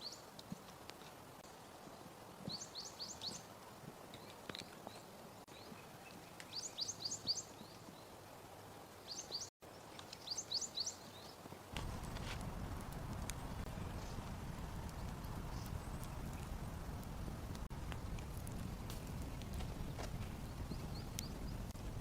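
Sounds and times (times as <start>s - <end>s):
songbird chirping: 1.4s - 3.5s, 4.1s - 11.5s.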